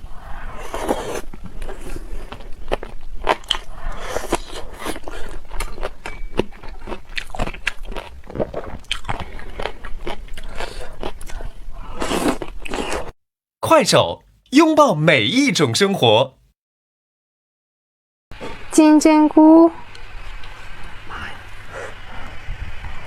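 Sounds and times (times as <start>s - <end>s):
person chewing crunchy food: 0.5s - 13.2s.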